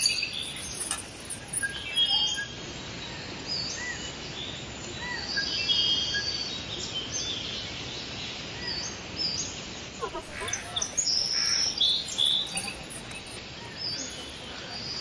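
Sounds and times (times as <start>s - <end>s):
small birds chirping and whistling: 0.0s - 2.5s, 10.0s - 15.0s
countryside background hiss: 9.6s - 15.0s.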